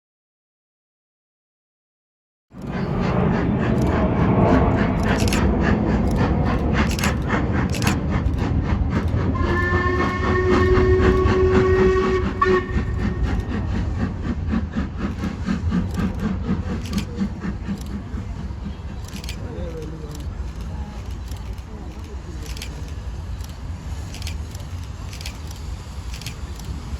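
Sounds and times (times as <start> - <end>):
train rumbling: 2.6 - 26.9
wheels clicking over rail joints: 2.6 - 26.9
train horn: 9.3 - 13.6.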